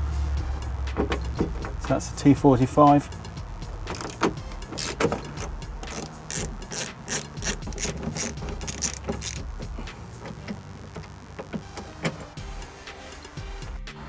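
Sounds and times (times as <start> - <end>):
ratchet wrench clicking: 3.9 - 10.4.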